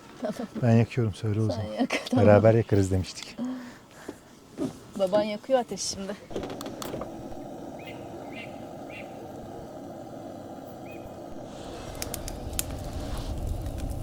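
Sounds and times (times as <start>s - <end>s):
campfire crackling: 0.1s - 14.0s
steady low rush: 7.0s - 14.0s.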